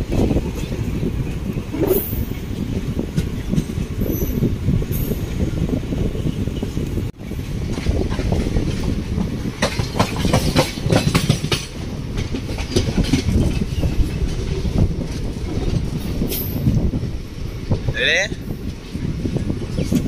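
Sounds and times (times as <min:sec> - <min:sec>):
train rumble: 0:00.0 - 0:20.0
wheels clicking over rail joints: 0:06.7 - 0:17.8.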